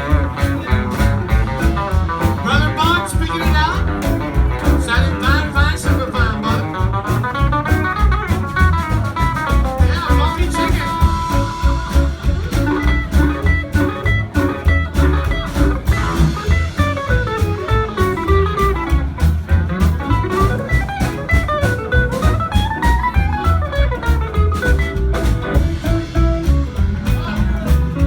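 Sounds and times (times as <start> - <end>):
bass and drum beat: 0.0 - 28.0
live band playing boogie: 0.0 - 28.0.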